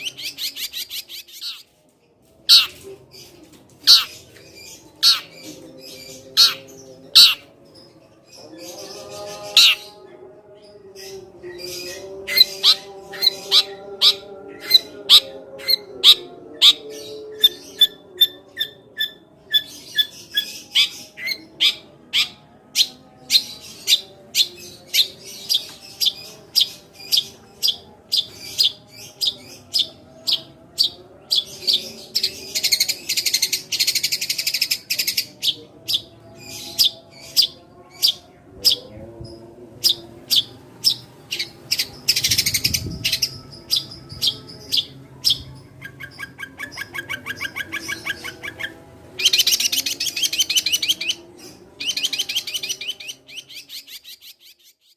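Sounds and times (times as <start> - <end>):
sparrow chirping: 0.0 - 1.7, 2.5 - 2.8, 3.8 - 7.6, 8.4 - 10.0, 10.8 - 38.9, 39.8 - 54.8
harsh bird chattering: 2.5 - 2.8, 5.0 - 5.3, 6.4 - 6.6, 7.2 - 7.5.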